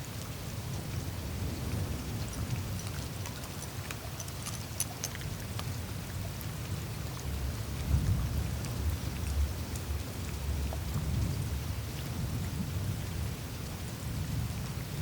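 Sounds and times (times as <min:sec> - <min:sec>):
water trickling through ice: 0:00.0 - 0:13.6
meltwater ticks and drips: 0:00.0 - 0:15.0.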